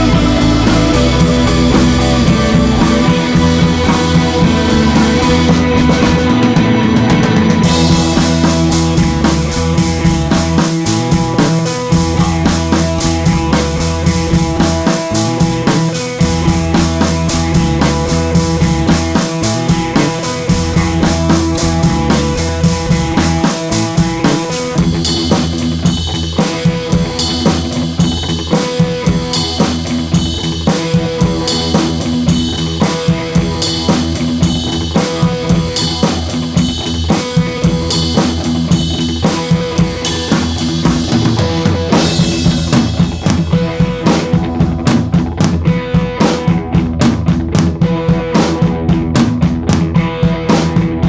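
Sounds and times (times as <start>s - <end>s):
bass line: 0.0s - 26.4s, 40.0s - 51.0s
drum kit beat: 0.0s - 51.0s.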